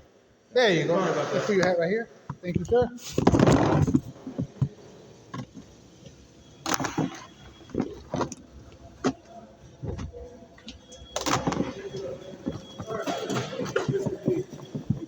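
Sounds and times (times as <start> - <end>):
baskets knocking and clattering: 6.6 - 15.0.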